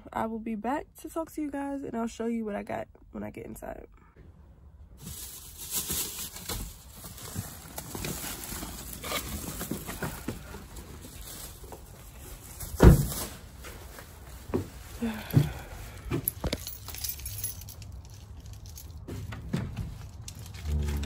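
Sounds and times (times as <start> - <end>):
grocery bags rustling and knocking: 5.0 - 21.0.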